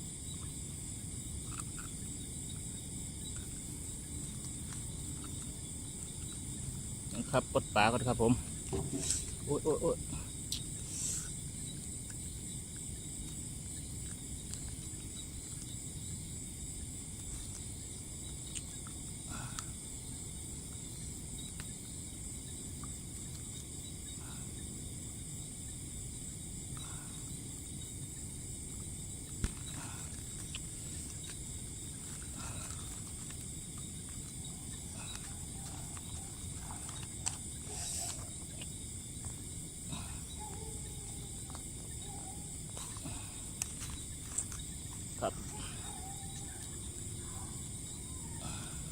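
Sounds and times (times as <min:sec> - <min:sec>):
insects chorus: 0:00.0 - 0:48.9
faint knocks and rustles: 0:08.5 - 0:09.4.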